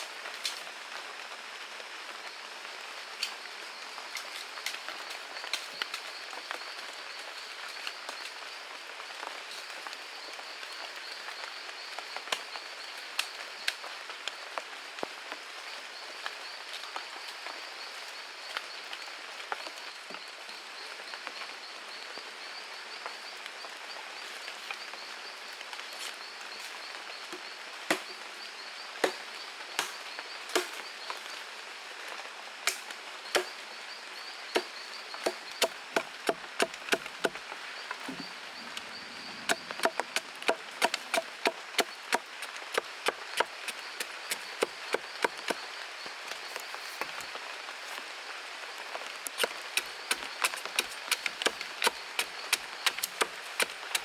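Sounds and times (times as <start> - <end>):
insects chirring: 33.2 - 48.2, 48.8 - 54.0.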